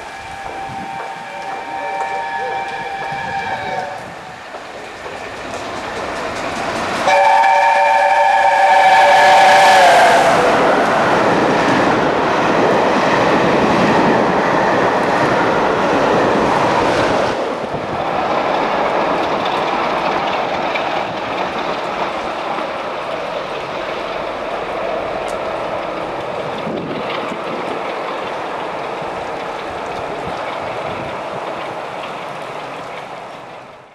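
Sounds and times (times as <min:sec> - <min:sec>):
steam locomotive chime whistle: 0:00.0 - 0:04.4, 0:07.0 - 0:10.6
rush of passing train: 0:00.0 - 0:33.9.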